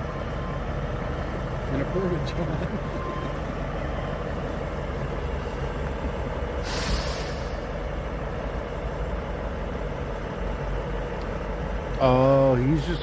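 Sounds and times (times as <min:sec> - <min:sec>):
diesel truck engine running: 0:00.0 - 0:13.0
air brake hiss: 0:06.6 - 0:07.8.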